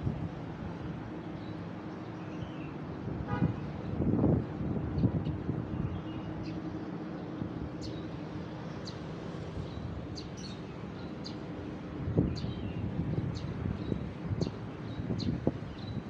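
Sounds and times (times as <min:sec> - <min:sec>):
road traffic rumble: 0:00.0 - 0:16.0
small birds chirping: 0:05.0 - 0:16.0.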